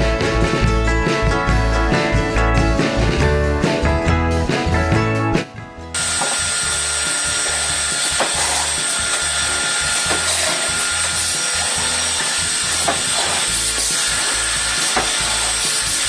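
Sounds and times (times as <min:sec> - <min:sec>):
machine hiss with high whine: 0:06.0 - 0:16.0.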